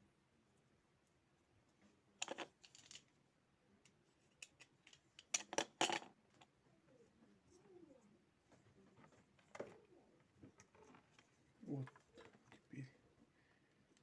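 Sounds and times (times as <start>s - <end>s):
small plastic parts clicking: 2.2s - 3.1s, 3.8s - 6.5s.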